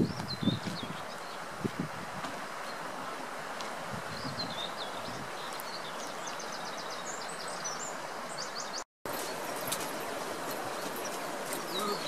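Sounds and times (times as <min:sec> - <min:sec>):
outdoor background hiss: 0:00.0 - 0:12.0
songbird chirping and trilling: 0:04.1 - 0:09.7, 0:10.7 - 0:12.0.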